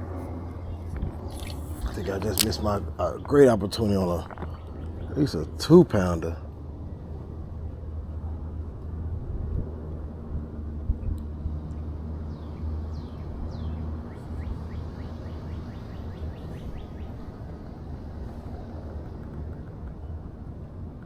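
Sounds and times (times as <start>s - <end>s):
steady low rumble: 0.0s - 21.0s
bird calling: 0.6s - 6.3s, 13.0s - 19.3s.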